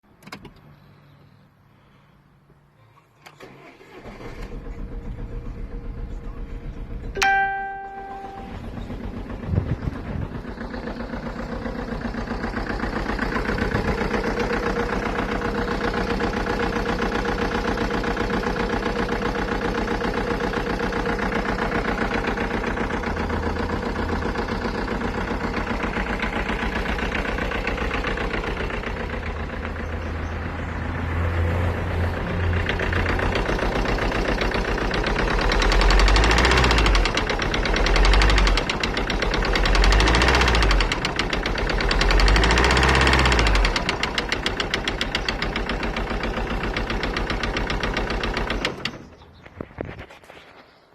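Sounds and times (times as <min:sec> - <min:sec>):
low rumbling: 0:04.6 - 0:17.8
car engine knocking: 0:04.8 - 0:31.3, 0:31.9 - 0:49.5.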